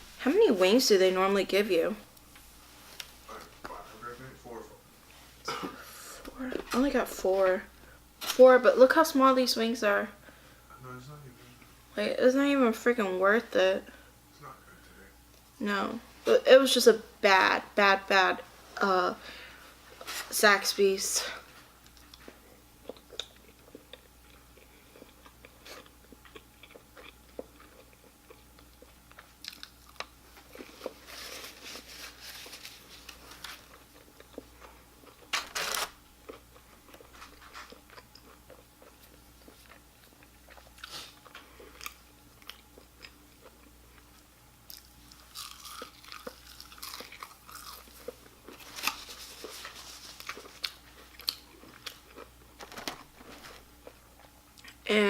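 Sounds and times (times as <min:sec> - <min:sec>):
chewing and crunching food: 0:21.4 - 0:54.9.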